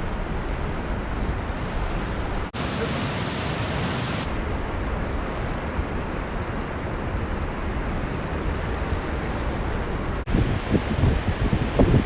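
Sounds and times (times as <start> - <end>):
waterfall rushing: 2.6 - 4.3.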